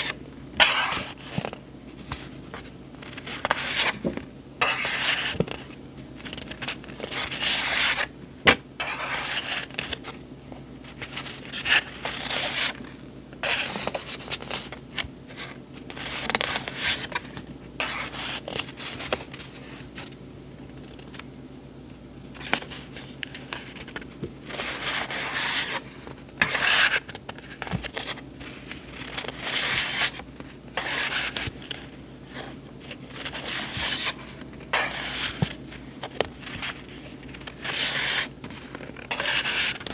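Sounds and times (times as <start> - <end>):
paper rustling: 0.0 - 10.2, 22.4 - 39.9.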